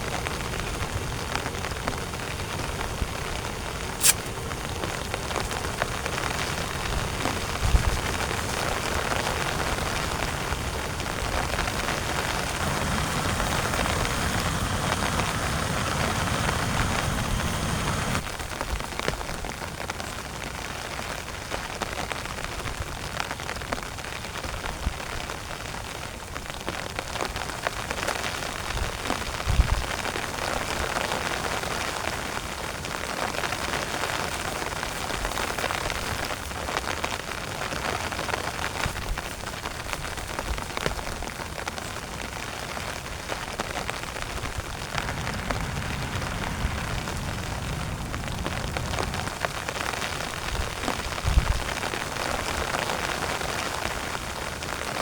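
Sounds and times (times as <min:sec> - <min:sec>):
heavy rain on a tent: 0:00.0 - 0:55.0.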